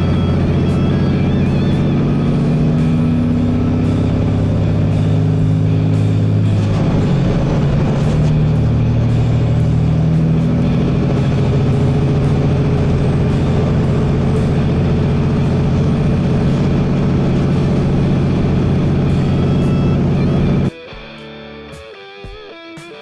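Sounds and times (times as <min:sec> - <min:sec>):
road noise: 0:00.0 - 0:20.7
vehicle engine droning: 0:00.0 - 0:20.7.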